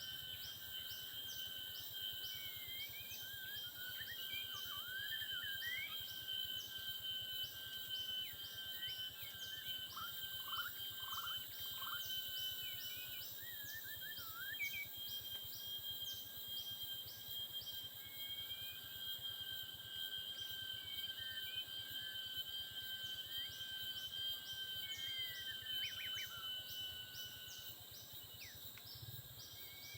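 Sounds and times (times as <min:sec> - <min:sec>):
insect drone: 0:00.0 - 0:29.9
bird whistling song: 0:12.9 - 0:15.3, 0:23.0 - 0:27.7, 0:28.4 - 0:29.9.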